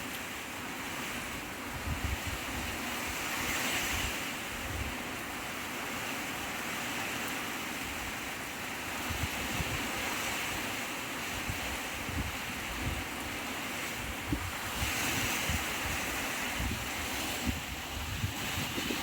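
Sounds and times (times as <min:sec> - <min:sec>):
wind buffeting microphone: 0:01.6 - 0:05.0, 0:09.0 - 0:10.7, 0:11.3 - 0:19.0
strong wind rushing: 0:14.0 - 0:19.0.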